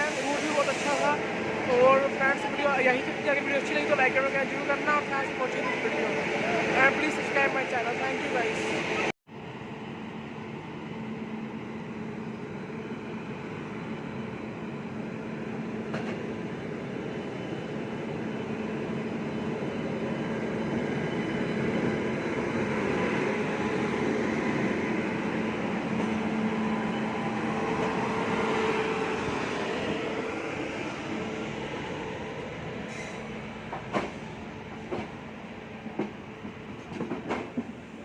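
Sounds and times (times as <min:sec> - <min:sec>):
train wheels rumbling on rails: 0:19.0 - 0:38.0.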